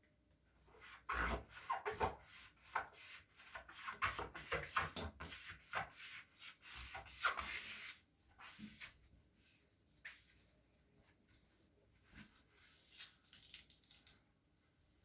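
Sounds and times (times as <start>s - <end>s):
squeaky scrubbing on a surface: 0.8s - 9.0s.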